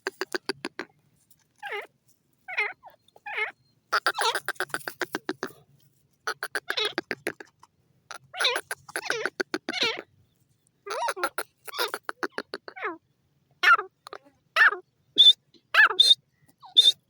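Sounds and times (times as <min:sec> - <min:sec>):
francolin calling: 0:08.1 - 0:10.1, 0:10.9 - 0:13.0, 0:13.6 - 0:17.0.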